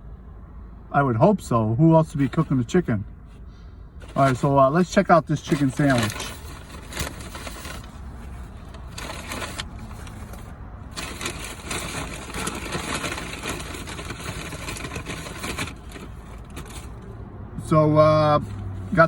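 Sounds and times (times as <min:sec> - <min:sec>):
paper bag rustling: 0:04.0 - 0:17.0.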